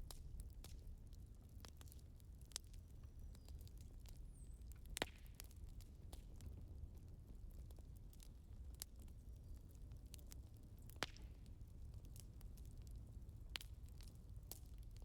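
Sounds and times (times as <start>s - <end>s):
firewood crackling and popping: 0.0s - 15.0s
low fire rumble: 0.0s - 15.0s.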